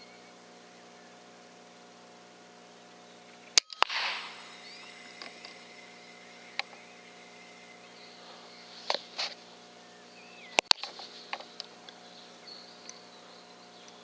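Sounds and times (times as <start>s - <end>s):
pellet hitting with sharp smack: 3.6s - 4.4s
air rifle shot: 3.6s - 7.8s
sharp clicks: 3.6s - 9.4s, 10.5s - 11.7s
brief rustle: 8.3s - 9.5s.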